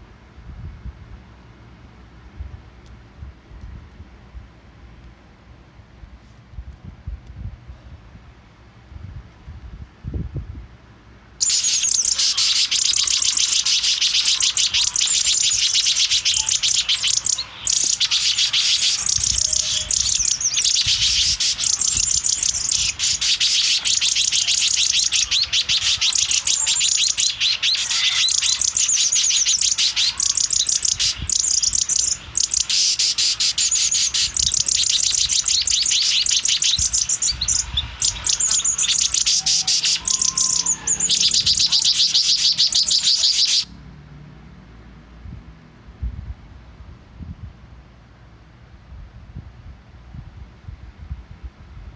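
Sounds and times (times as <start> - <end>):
baby bird cheeping loudly: 11.4 - 43.7.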